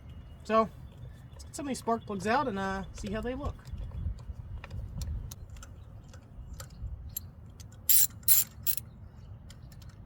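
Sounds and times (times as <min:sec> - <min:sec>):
ratchet wrench clicking: 0:07.9 - 0:08.8.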